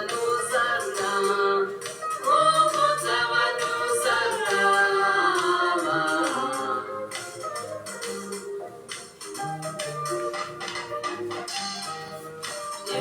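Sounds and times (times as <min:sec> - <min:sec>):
group singing gospel in harmony: 0:00.0 - 0:07.4.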